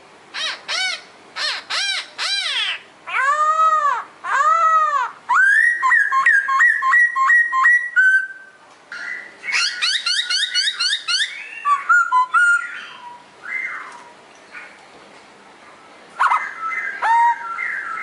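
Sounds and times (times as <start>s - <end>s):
songbird whistling: 5.3s - 14.1s, 16.2s - 18.0s.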